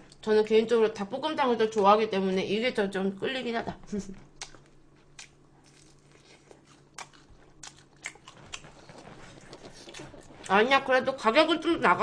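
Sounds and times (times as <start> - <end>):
faint low hum: 0.0 - 12.0
quiet chewing: 4.2 - 10.6.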